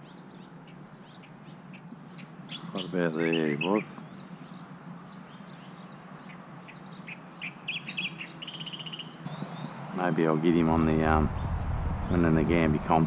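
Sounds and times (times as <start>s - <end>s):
small birds chirping: 0.0s - 13.0s
low steady hum: 10.4s - 13.0s.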